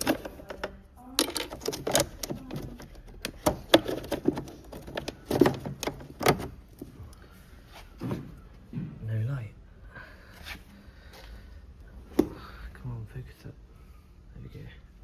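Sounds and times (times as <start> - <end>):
hard plastic clicks and knocks: 0.0 - 6.9
connector rattling: 0.0 - 7.0.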